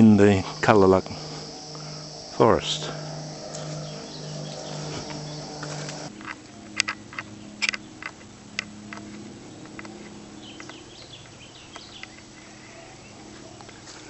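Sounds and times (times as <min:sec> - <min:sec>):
faint bird chirps: 0:00.0 - 0:07.9
low steady hum: 0:00.0 - 0:13.8.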